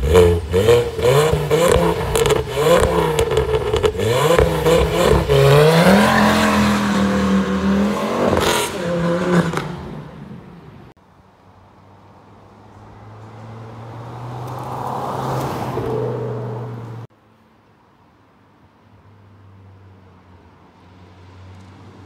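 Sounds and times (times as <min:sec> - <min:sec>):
exhaust crack: 0:00.0 - 0:10.8
car engine pulling hard: 0:00.0 - 0:10.9.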